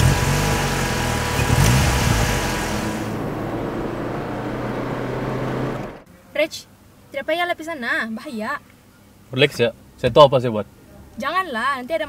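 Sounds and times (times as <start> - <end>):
car engine revving: 0.0 - 6.1.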